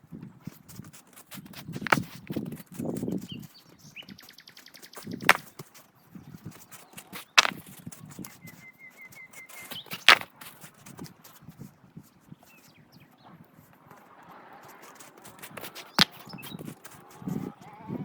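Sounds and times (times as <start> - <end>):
wood cracking: 7.0 - 8.3, 9.8 - 10.9.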